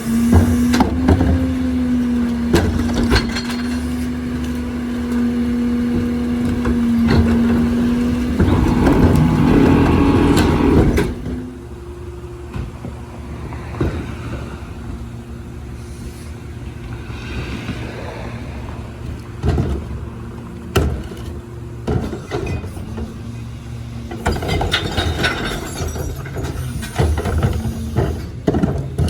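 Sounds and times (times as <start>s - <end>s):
truck hydraulics whining: 0.0s - 29.0s.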